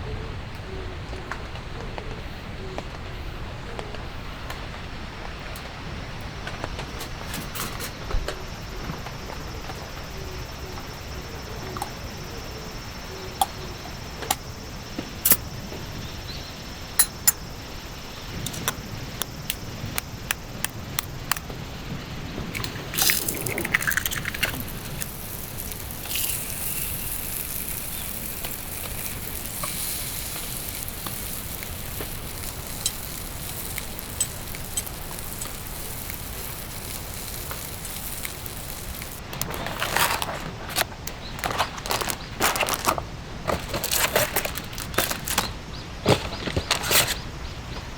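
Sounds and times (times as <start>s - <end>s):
steady rain: 19.4s - 39.4s.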